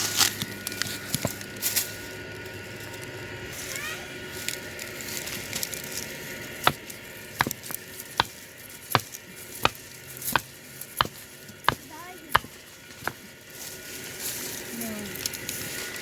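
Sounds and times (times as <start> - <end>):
chopping knocks: 7.4 - 8.4, 9.0 - 13.2.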